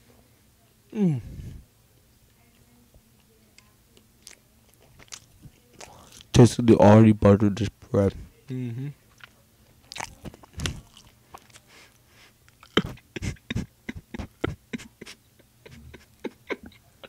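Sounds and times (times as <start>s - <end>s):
chewing with mouth clicks: 3.2s - 6.3s, 9.1s - 16.9s.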